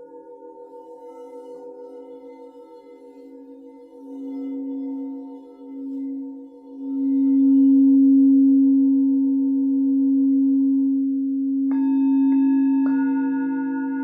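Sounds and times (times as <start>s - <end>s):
low singing bowl ringing: 0.0s - 14.0s
higher singing bowls struck: 11.6s - 14.0s.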